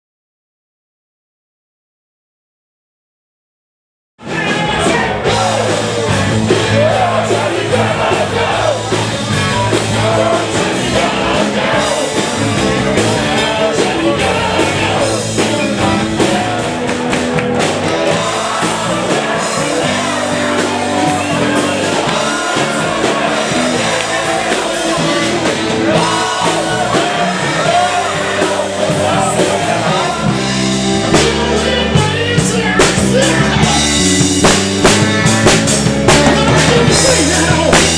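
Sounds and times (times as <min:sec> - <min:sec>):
bass guitar: 0:04.2 - 0:37.9
drums: 0:04.2 - 0:37.9
person singing: 0:17.6 - 0:34.4, 0:36.0 - 0:37.9.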